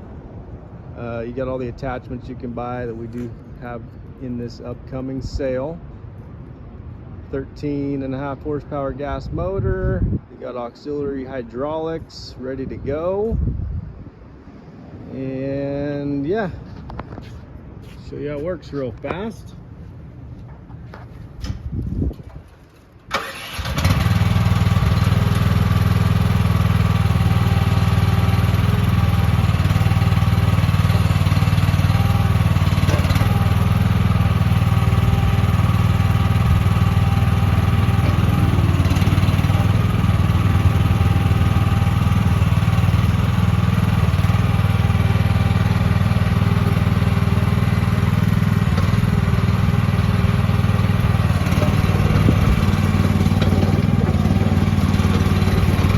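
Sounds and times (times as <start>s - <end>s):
excavator gas engine running: 26.5s - 55.9s.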